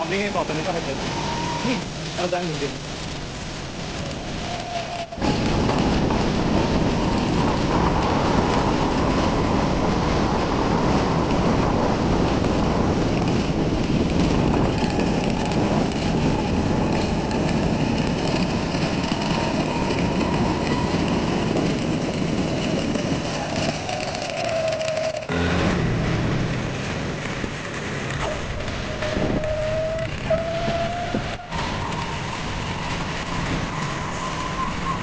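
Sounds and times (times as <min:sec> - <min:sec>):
steady rushing noise: 0:00.0 - 0:35.0.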